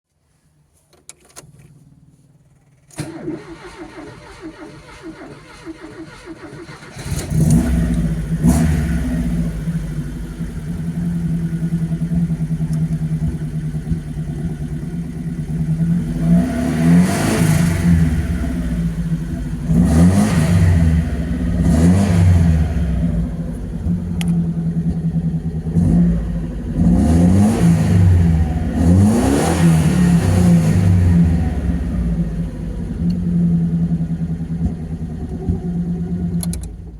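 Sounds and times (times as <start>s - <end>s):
car engine idling and revving: 1.2s - 36.9s.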